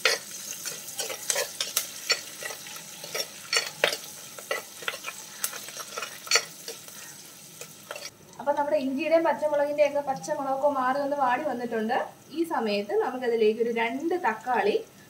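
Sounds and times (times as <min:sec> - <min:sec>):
spatula scraping a pot: 0:00.0 - 0:08.1
food sizzling in hot oil: 0:00.0 - 0:15.0.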